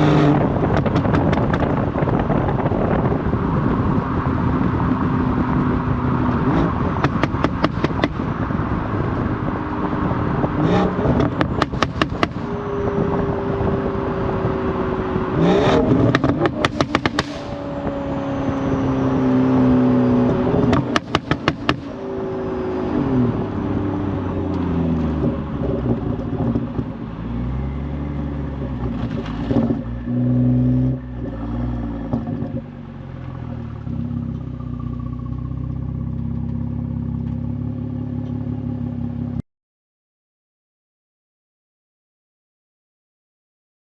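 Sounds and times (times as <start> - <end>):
car exhaust revving: 0.0 - 39.3
sharp exhaust pops: 0.6 - 2.6, 6.6 - 8.4, 10.7 - 12.5, 15.6 - 17.7, 20.6 - 22.0.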